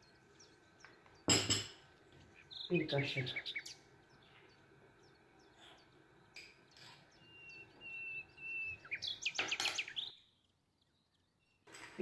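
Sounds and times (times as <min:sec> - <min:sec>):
small bird chirping and whistling: 0:06.7 - 0:10.3.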